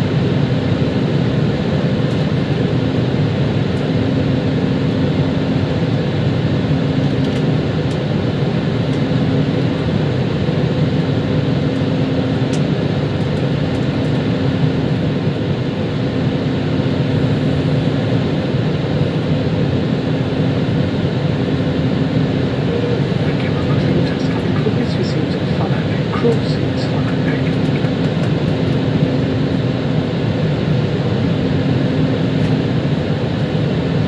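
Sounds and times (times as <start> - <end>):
airflow rushing in plane cabin: 0.0 - 34.0
jet engines: 0.0 - 34.0.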